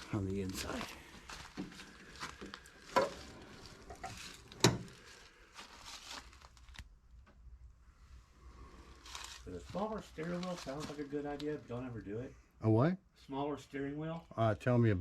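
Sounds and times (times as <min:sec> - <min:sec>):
handling rustling: 0:00.3 - 0:06.9, 0:08.9 - 0:11.6.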